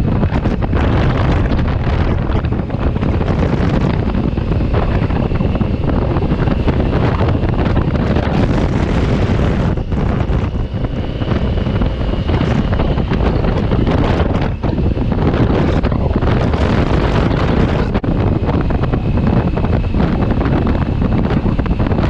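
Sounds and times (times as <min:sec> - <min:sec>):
motorcycle road noise: 0:00.0 - 0:22.0
wind buffeting microphone: 0:00.0 - 0:22.0.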